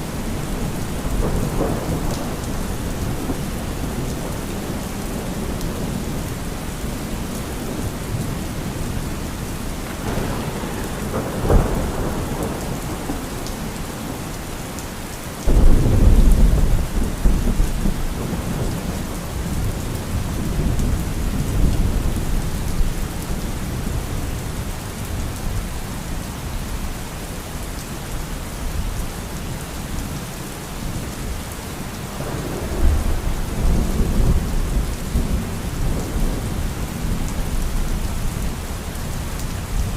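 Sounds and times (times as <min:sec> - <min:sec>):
heavy rain: 0:00.0 - 0:39.9
rolling thunder: 0:00.2 - 0:06.4, 0:09.8 - 0:14.4, 0:15.4 - 0:24.3, 0:32.2 - 0:38.7
loud thunderclap: 0:09.9 - 0:13.7, 0:15.5 - 0:22.2.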